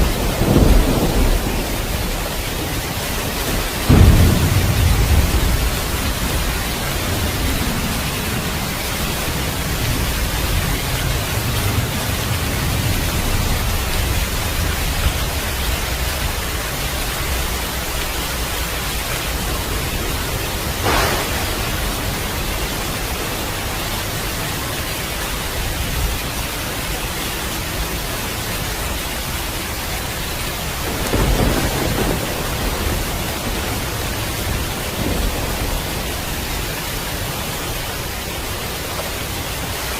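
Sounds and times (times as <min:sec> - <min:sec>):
thunder crack: 0:00.0 - 0:15.4, 0:19.4 - 0:24.3, 0:30.7 - 0:37.1
thunder rumbling: 0:00.0 - 0:27.0, 0:27.7 - 0:39.9
heavy rain: 0:00.0 - 0:39.9.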